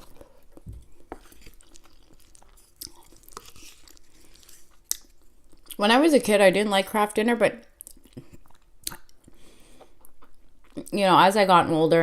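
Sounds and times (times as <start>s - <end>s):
person chewing food: 0.0s - 5.8s, 7.8s - 10.9s.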